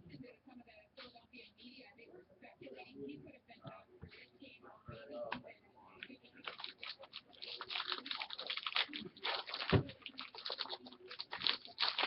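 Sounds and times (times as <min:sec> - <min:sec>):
card wrappers crinkling: 0:06.4 - 0:12.0.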